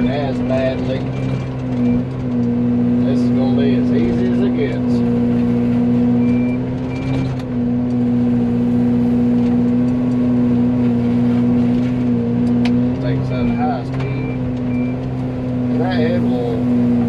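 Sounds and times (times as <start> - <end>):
excavator and mulcher droning: 0.0 - 17.0.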